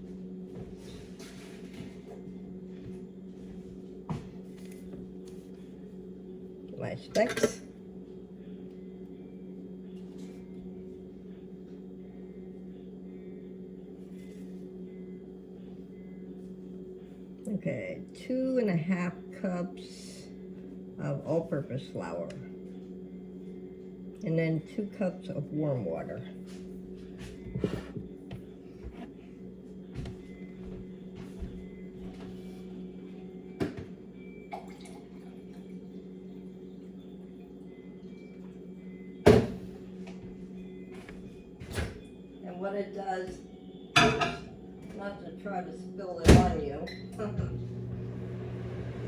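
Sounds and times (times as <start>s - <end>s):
steady low hum: 0.0s - 49.0s
water pouring into a bowl: 34.6s - 35.7s.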